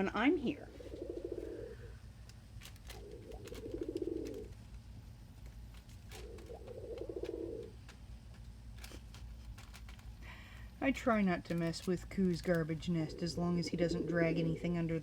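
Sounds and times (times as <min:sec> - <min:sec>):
dove cooing: 0:00.6 - 0:02.1, 0:02.7 - 0:04.6, 0:06.1 - 0:07.8, 0:12.5 - 0:15.0.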